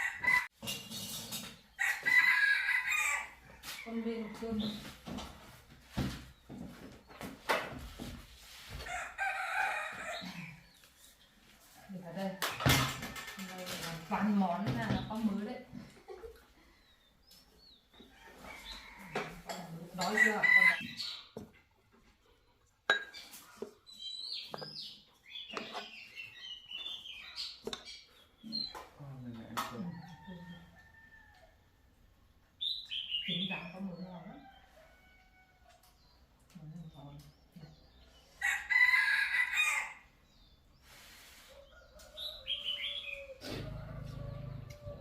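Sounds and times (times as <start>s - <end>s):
rooster crowing: 1.8s - 3.5s, 38.4s - 40.0s, 42.0s - 45.0s
birds chirping: 20.0s - 31.3s, 32.4s - 45.0s
tableware clinking: 22.9s - 23.2s.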